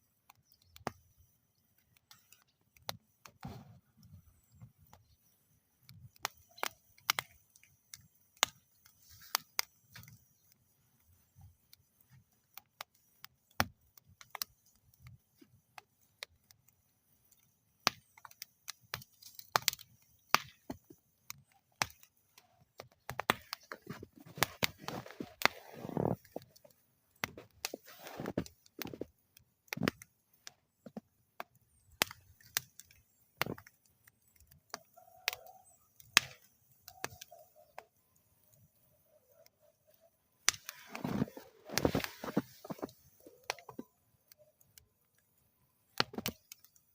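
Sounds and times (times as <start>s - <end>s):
wood fire crackling and popping: 0.0s - 46.9s
soft rush of flame: 38.4s - 43.7s.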